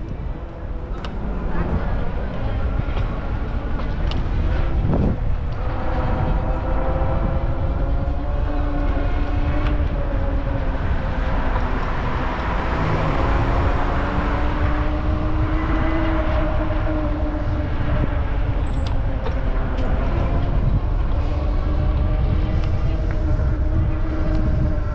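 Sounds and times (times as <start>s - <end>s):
city traffic: 0.0s - 24.9s
wind rumble on microphone: 0.0s - 24.9s.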